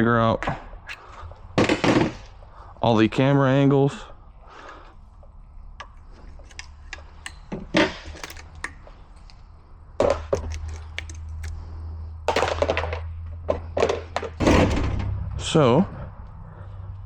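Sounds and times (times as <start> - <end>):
tools clattering on workbench: 5.8 - 9.0.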